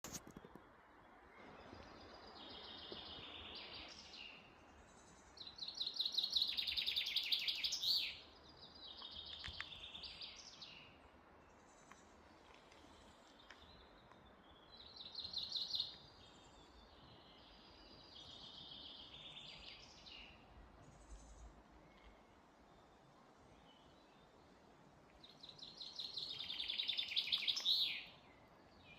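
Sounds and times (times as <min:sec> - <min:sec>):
faint steady hiss: 0:00.0 - 0:28.9
songbird singing: 0:00.0 - 0:28.9.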